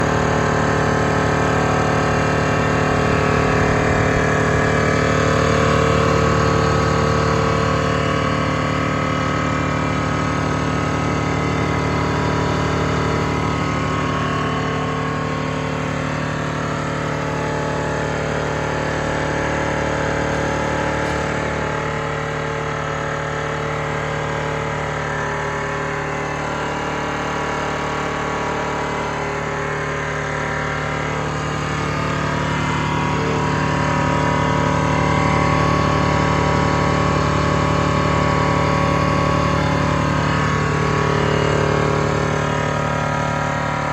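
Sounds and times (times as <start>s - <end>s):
compressor humming: 0.0s - 43.9s.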